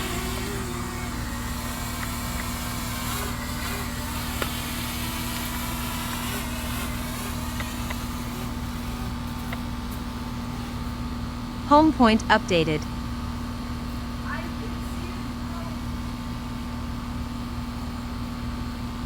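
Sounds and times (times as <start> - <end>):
drone propellers whirring: 0.0 - 9.6.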